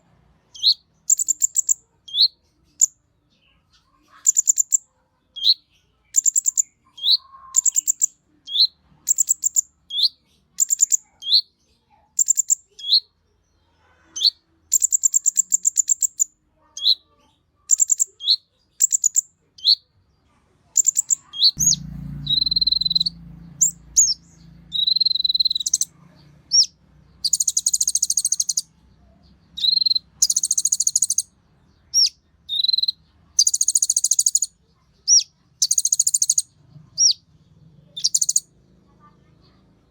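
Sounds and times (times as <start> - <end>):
bird buzzy trills: 20.8 - 25.9, 29.6 - 31.3, 32.0 - 34.5, 35.1 - 37.2, 37.9 - 38.4.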